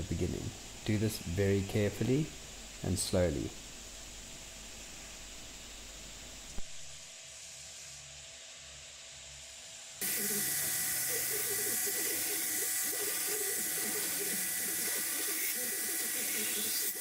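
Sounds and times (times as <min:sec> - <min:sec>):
belt grinder grinding steel: 0:10.0 - 0:17.0.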